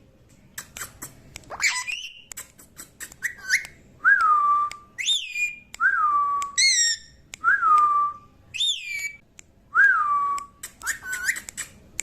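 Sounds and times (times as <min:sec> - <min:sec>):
parrot whistling: 0:01.5 - 0:02.3, 0:03.1 - 0:03.8, 0:05.0 - 0:05.6, 0:06.4 - 0:07.2, 0:08.5 - 0:09.2, 0:10.7 - 0:11.7
parrot clicks: 0:10.4 - 0:12.0.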